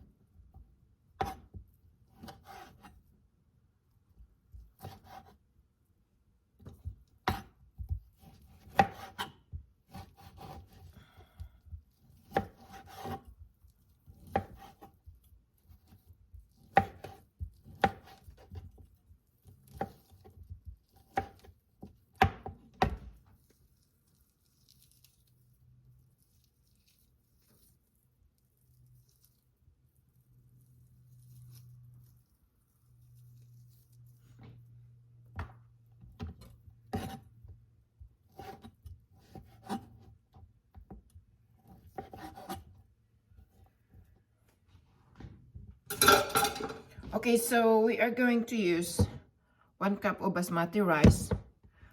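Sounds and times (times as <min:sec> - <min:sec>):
knife chopping on cutting board: 0:01.2 - 0:01.6, 0:02.2 - 0:03.0, 0:04.8 - 0:05.4, 0:06.6 - 0:10.9, 0:11.9 - 0:13.4, 0:14.0 - 0:15.0, 0:15.7 - 0:18.9, 0:19.7 - 0:23.2, 0:36.2 - 0:37.2, 0:38.3 - 0:41.0, 0:41.6 - 0:42.6.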